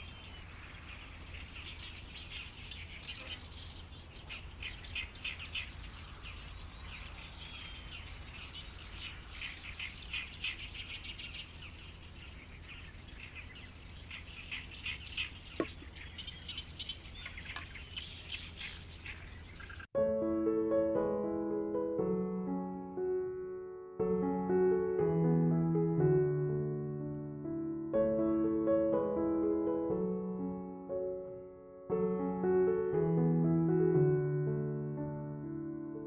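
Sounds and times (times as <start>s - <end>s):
small birds chirping: 0.0s - 19.9s
piano music: 20.0s - 36.0s.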